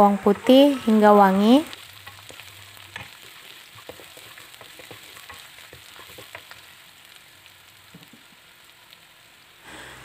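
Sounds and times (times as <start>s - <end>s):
shallots sizzling in oil: 0.0s - 10.0s
wooden spatula scraping a pan: 2.0s - 6.6s.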